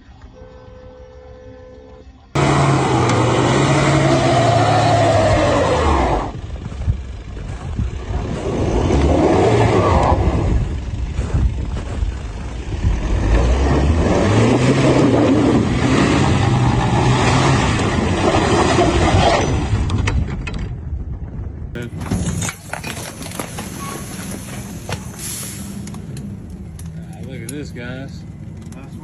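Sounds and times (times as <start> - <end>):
road noise: 0.0 - 29.0
car engine accelerating: 2.3 - 19.8.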